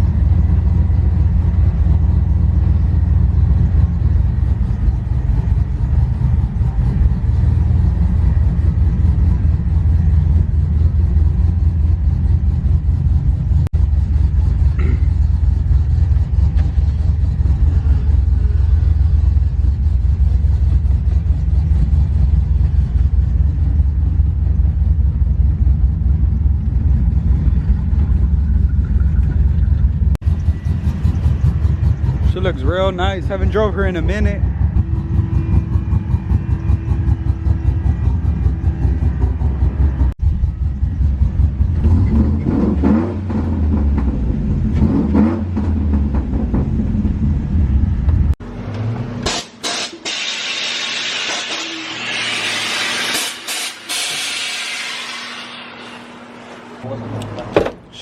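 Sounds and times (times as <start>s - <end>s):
truck engine and road rumble: 0.0s - 58.0s.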